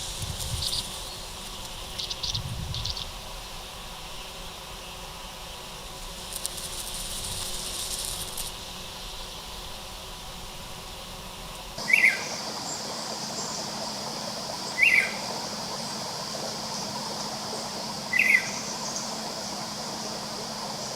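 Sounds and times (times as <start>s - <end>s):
high insect whine: 0.0s - 20.9s
high rasping insect trill: 0.0s - 20.9s
steady insect noise: 0.0s - 20.9s
bird downward-sliding calls: 11.8s - 12.3s.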